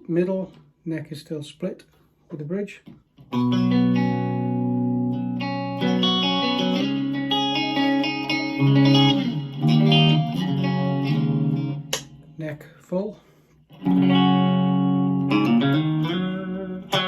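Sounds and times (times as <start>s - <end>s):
clean electric guitar chords: 3.3s - 12.4s, 13.8s - 17.0s.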